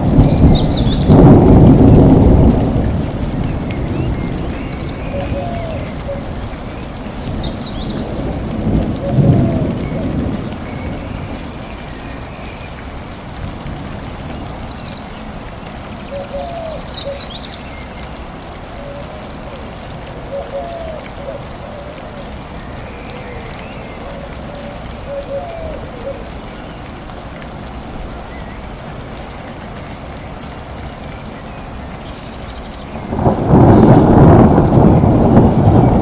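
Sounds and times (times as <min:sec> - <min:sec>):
low rumble of thunder: 0:00.0 - 0:12.3, 0:32.9 - 0:36.0
steady rain falling: 0:00.0 - 0:36.0.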